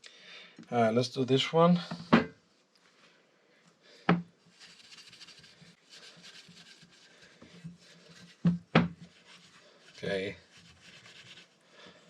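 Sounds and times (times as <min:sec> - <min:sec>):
faint rubbing on metal: 0:04.4 - 0:12.0.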